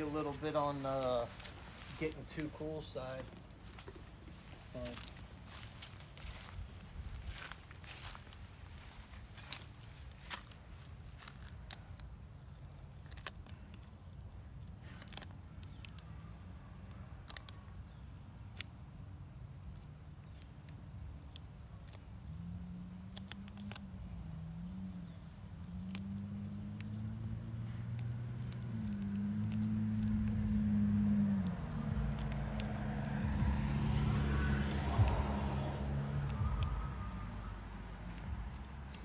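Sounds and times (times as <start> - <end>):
passing vehicle engine hum: 0.0 - 11.8, 22.2 - 39.0
low outdoor rumble: 0.0 - 13.1, 21.6 - 39.0.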